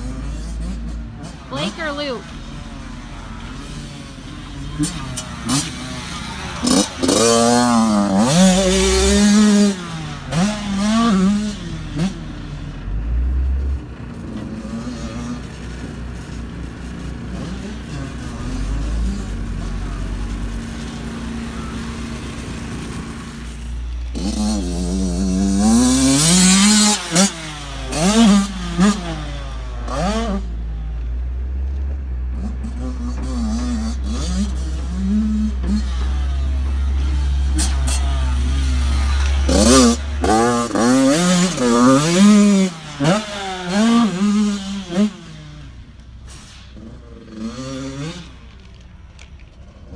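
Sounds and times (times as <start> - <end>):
dirt bike engines revving: 0.0 - 49.9.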